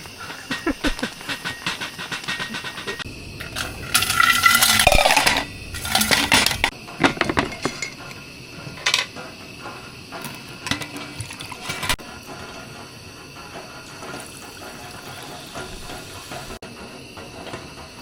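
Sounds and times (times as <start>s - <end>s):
metal cookware clattering: 0.2s - 9.2s, 10.2s - 12.4s.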